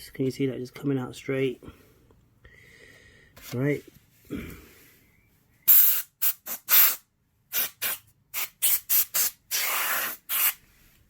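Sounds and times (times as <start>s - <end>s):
compressed air duster hissing blasts: 5.7s - 10.6s.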